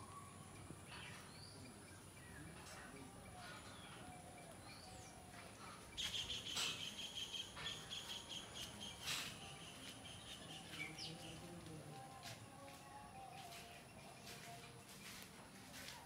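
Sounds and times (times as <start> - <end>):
background birdsong: 0.0 - 16.0
bird chirping rapidly: 6.0 - 11.4.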